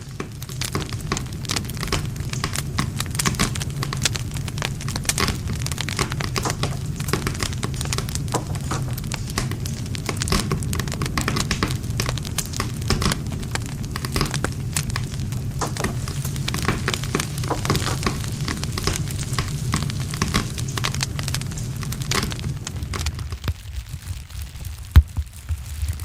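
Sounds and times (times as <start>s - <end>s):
campfire crackling: 0.0s - 26.0s.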